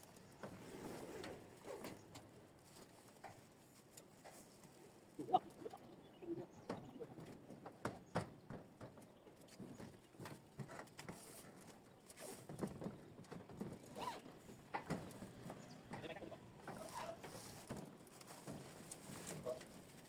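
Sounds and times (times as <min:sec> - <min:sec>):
faint knocks and taps: 0:06.7 - 0:11.8.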